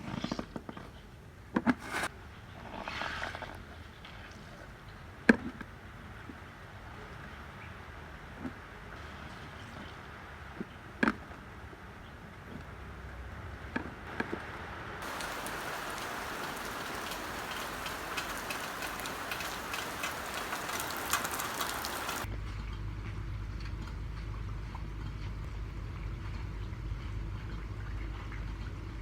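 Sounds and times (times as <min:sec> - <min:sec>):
rain pattering on a surface: 0:14.2 - 0:22.3.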